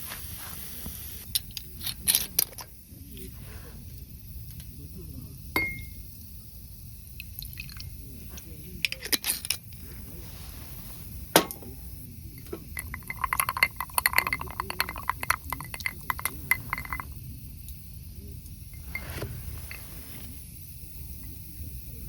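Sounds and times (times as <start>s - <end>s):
glassware clinking: 5.6s - 6.0s, 11.4s - 17.2s.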